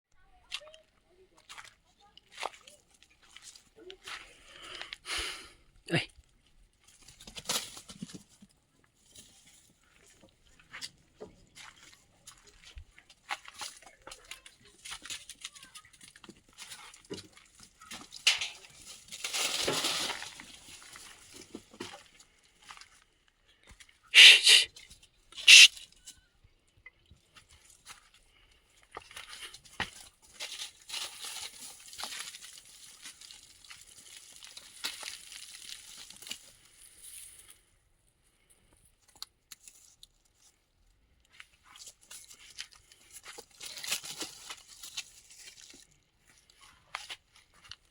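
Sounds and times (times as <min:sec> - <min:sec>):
rustling and crinkling: 0:06.2 - 0:24.0, 0:27.2 - 0:47.9
short sharp loud sounds: 0:24.2 - 0:24.7, 0:25.4 - 0:25.7.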